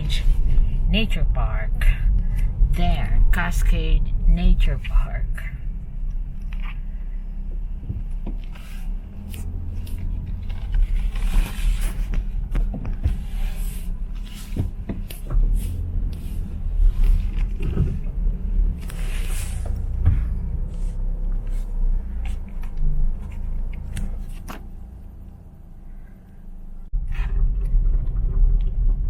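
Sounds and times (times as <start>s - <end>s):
car engine and road rumble: 0.0s - 29.0s
knocks and rattles in car cabin: 7.7s - 8.5s, 10.1s - 18.6s, 19.7s - 20.7s.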